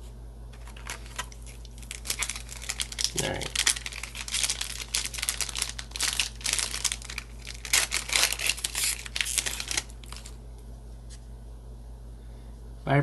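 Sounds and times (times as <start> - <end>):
foil pack crinkling and tearing: 0.6 - 10.4.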